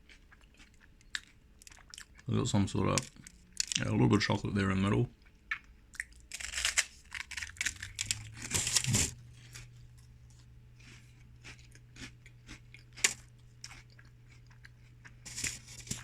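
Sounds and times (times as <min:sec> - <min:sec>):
low steady hum: 0:00.0 - 0:16.0
wafer being bitten and chewed: 0:05.5 - 0:16.0.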